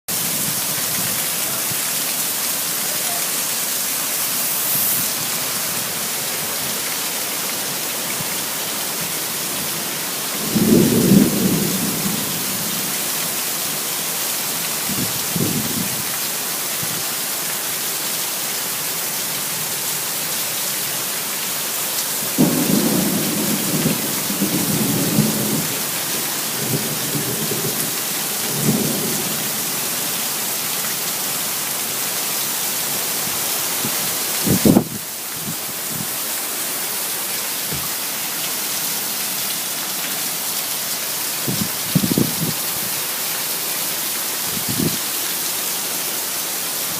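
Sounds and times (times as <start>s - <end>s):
rain hiss: 0.1s - 46.9s
thunder rumbling: 10.4s - 13.0s, 22.4s - 25.9s.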